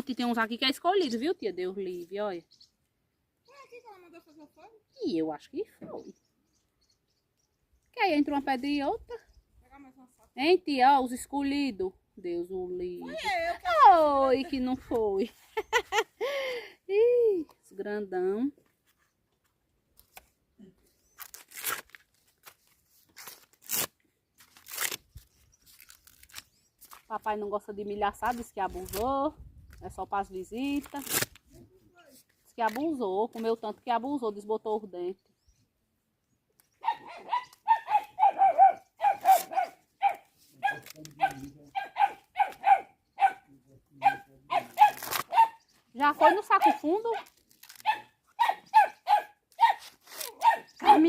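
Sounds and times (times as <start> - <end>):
corn husks ripping: 21.1 - 27.1, 30.7 - 33.4, 39.0 - 41.5, 44.6 - 45.5, 46.2 - 48.1, 49.5 - 51.0
dog barking high-pitched: 36.8 - 45.6, 47.8 - 51.0.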